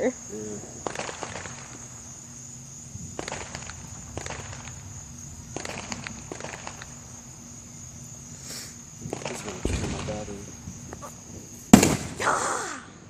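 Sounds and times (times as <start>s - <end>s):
night insects trilling: 0.0s - 13.0s
sharp crackles and clicks: 0.8s - 2.1s, 3.1s - 7.3s, 9.0s - 12.1s.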